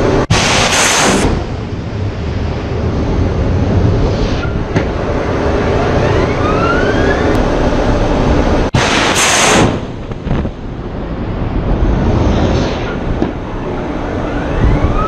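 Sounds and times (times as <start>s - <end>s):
loud hissing blast: 0.0s - 3.1s, 8.7s - 13.6s
heavy weapons fire rumble: 8.7s - 13.5s.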